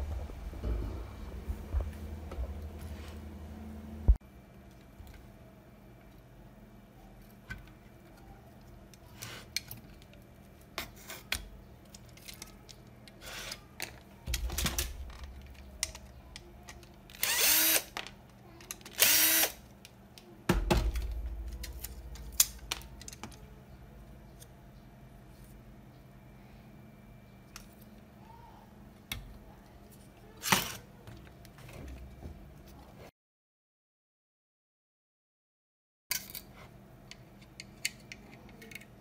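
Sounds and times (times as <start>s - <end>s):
cordless drill whirring: 17.2s - 17.9s, 19.0s - 19.6s
clicks of parts being handled: 21.6s - 23.4s, 36.1s - 36.5s, 37.1s - 39.0s.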